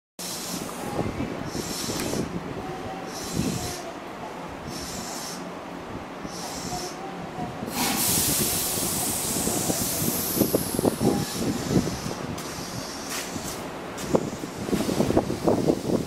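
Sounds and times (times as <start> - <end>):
air brakes hissing: 7.6 - 16.0.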